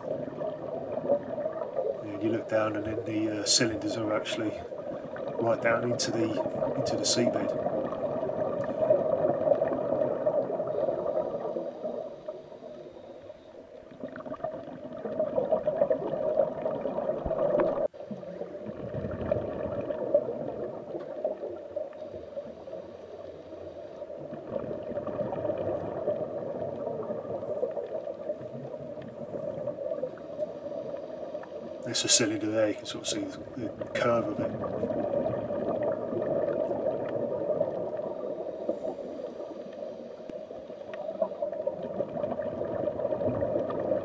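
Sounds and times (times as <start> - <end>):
bubbles gurgling: 0.0 - 44.0.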